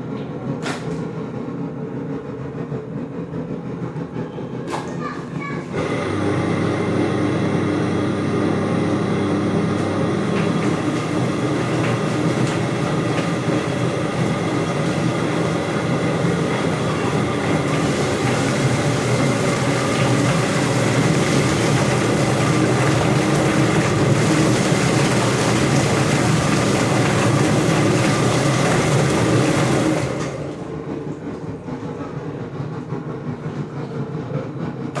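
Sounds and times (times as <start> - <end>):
motor hum: 5.6 - 32.0.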